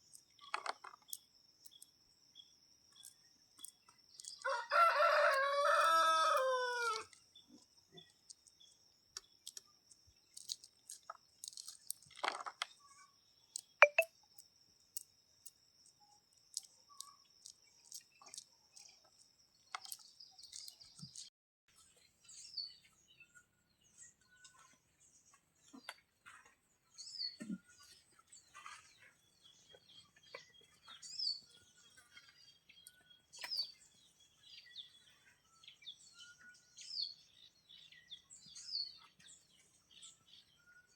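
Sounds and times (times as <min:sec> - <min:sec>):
rooster crowing: 0:04.4 - 0:07.0
high bird chirps: 0:13.8 - 0:14.1.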